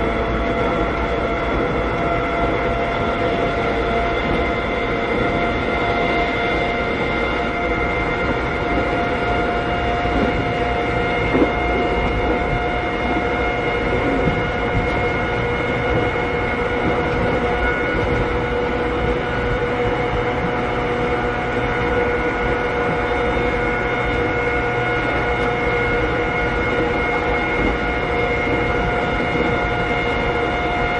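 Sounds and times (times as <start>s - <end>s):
traction motor whine: 0.0s - 30.9s
wheel and rail rumble: 0.0s - 30.9s.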